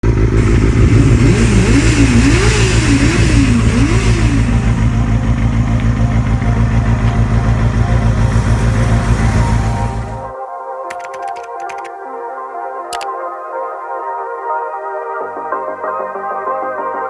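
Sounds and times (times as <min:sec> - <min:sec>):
motorcycle engine revving: 0:00.0 - 0:10.3.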